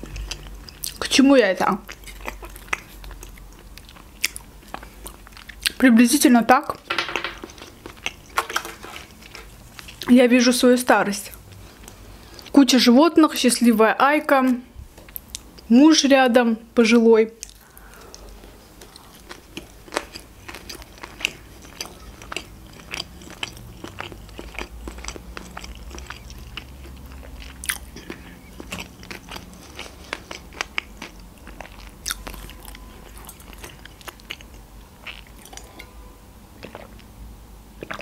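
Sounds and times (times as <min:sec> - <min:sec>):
person chewing wet clicks: 0:00.0 - 0:01.1, 0:01.8 - 0:05.8, 0:17.4 - 0:35.9, 0:36.6 - 0:37.1, 0:37.8 - 0:38.0.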